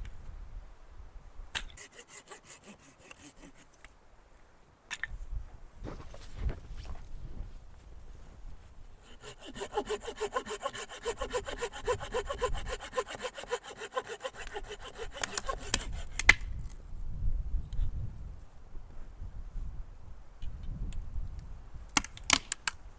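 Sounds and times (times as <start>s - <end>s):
hand saw cutting wood: 1.8s - 3.8s, 9.0s - 16.4s.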